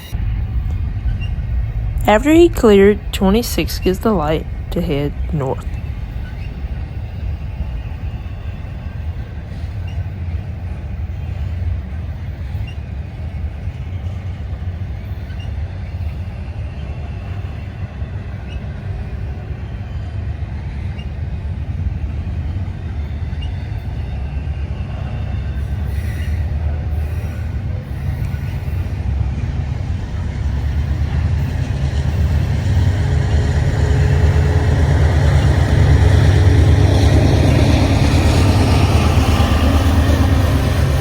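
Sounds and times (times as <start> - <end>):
freight train rumbling past: 0.0 - 41.0.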